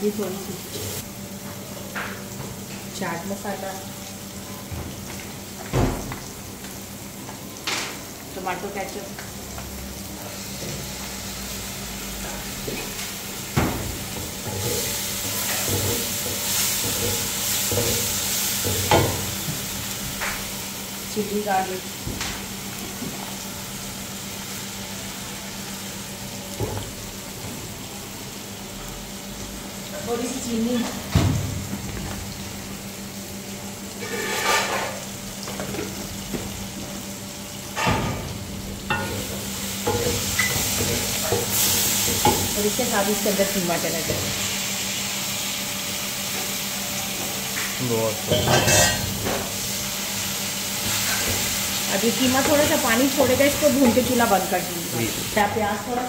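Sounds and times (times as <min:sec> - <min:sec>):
masala sizzling in a wok: 0:00.0 - 0:56.0
wooden spatula scraping pan: 0:34.0 - 0:34.9.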